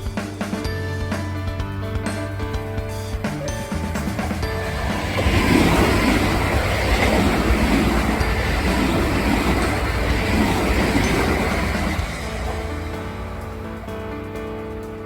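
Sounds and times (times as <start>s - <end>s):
electric train passing: 3.1s - 15.0s.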